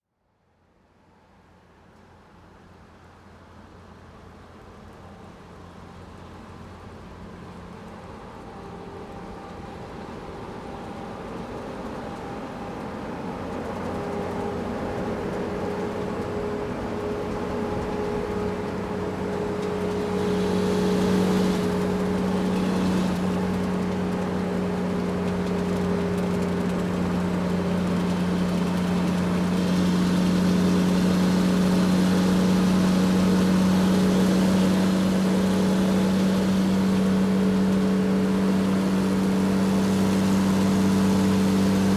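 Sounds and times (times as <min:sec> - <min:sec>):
truck engine running: 0:13.6 - 0:41.9.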